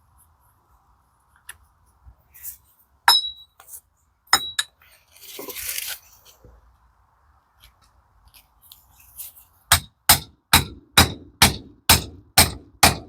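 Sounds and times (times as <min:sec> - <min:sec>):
ringing metal-on-metal strikes: 0:03.1 - 0:03.5
scraping rustle: 0:04.8 - 0:06.6, 0:07.7 - 0:09.6.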